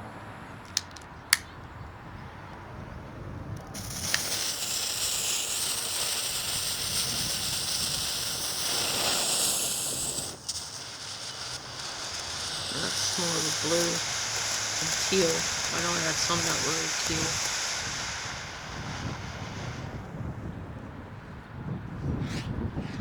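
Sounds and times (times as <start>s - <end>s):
wind rumbling on microphone: 0.0s - 23.0s
smoke ball hissing: 0.6s - 1.4s, 2.7s - 20.6s
lighter clicks: 0.6s - 1.5s, 3.6s - 20.0s.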